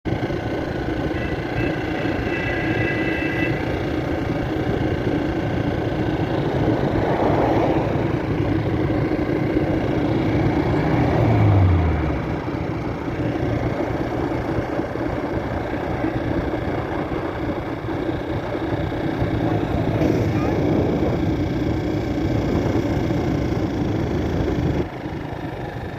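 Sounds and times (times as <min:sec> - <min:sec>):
traffic rumble: 0:00.1 - 0:25.9
vehicle passing by: 0:06.8 - 0:08.7, 0:09.8 - 0:12.9.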